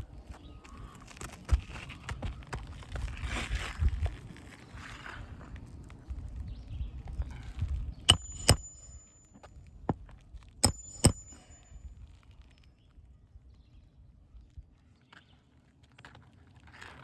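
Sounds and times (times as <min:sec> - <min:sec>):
hammer striking roofing nails: 0:08.1 - 0:09.2, 0:10.6 - 0:11.6
brief metallic ring: 0:08.1 - 0:09.3, 0:10.6 - 0:11.7.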